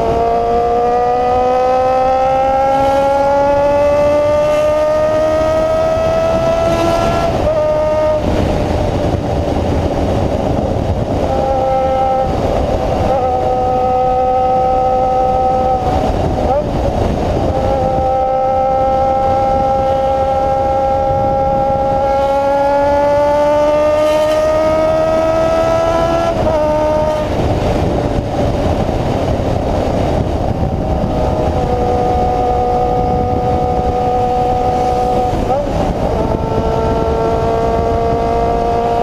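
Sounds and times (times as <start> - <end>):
motorcycle engine revving loud: 0.0 - 39.0.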